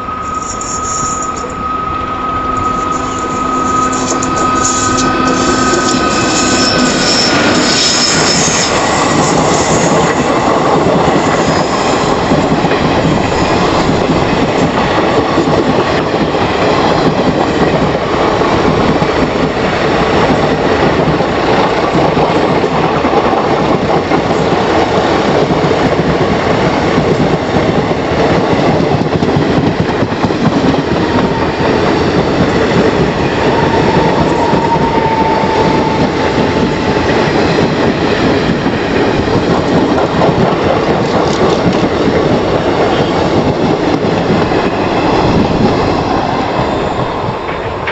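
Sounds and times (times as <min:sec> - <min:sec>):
train wheel squeal: 0:00.0 - 0:19.4, 0:28.7 - 0:37.0
train wheels clattering over rails: 0:02.6 - 0:47.9.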